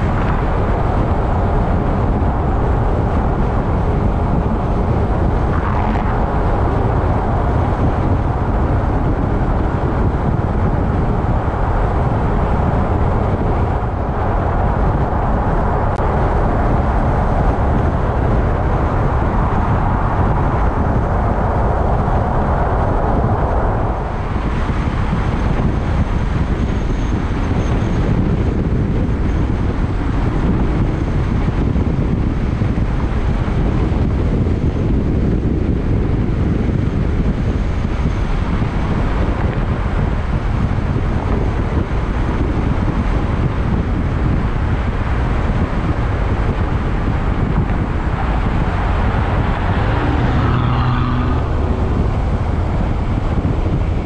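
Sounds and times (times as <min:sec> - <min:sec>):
car engine running: 0:00.0 - 0:27.3, 0:43.1 - 0:54.0
road noise: 0:00.0 - 0:54.0
wind noise: 0:00.0 - 0:54.0.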